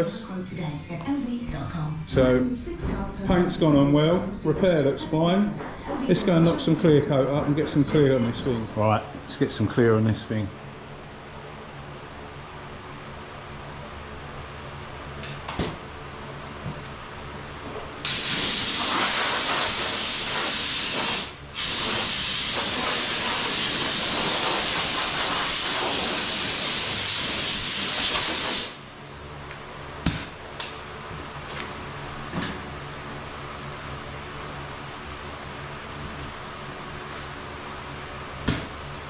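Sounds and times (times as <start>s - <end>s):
paint spray gun hissing: 18.0s - 28.8s.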